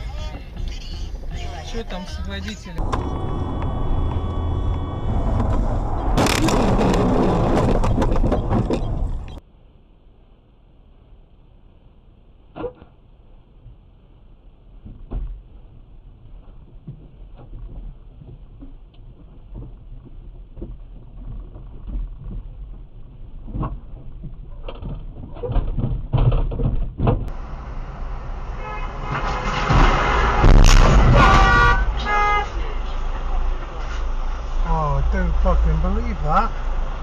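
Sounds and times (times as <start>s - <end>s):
traffic noise: 0.0s - 25.4s, 27.2s - 37.0s
car road and engine rumble: 0.0s - 37.0s
car horn honking: 28.4s - 33.0s.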